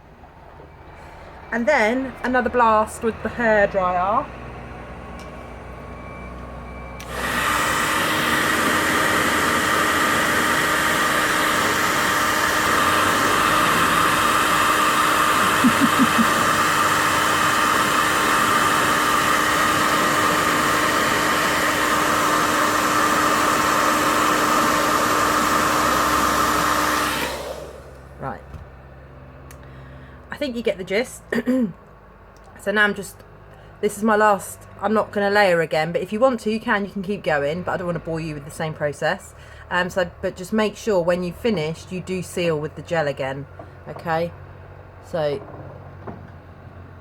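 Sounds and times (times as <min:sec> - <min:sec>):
hairdryer blowing: 0:02.3 - 0:28.4.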